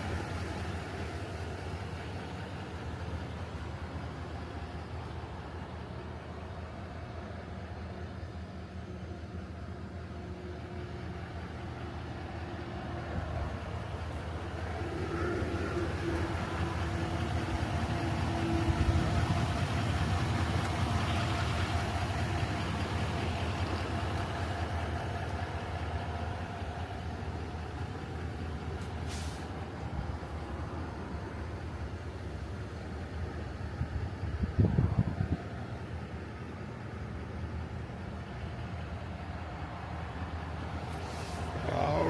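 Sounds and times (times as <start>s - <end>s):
vehicle engine rumbling: 0.0s - 42.0s
short hiss: 29.0s - 29.5s, 40.9s - 41.5s.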